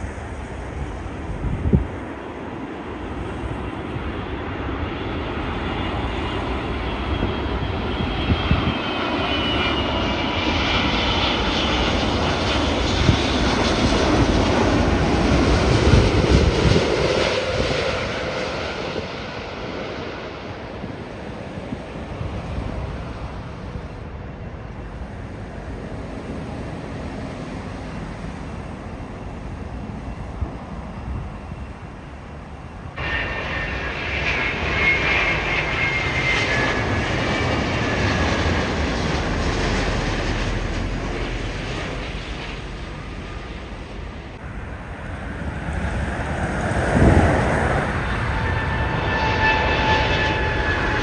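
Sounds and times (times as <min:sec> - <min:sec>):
jet airliner engines rumbling: 0:00.0 - 0:51.0
high engine whine: 0:24.0 - 0:51.0.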